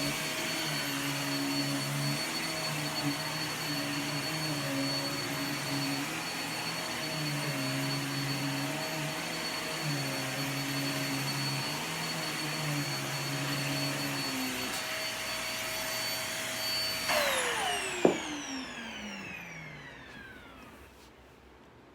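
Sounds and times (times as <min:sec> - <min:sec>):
vacuum cleaner whining: 0:00.0 - 0:21.2.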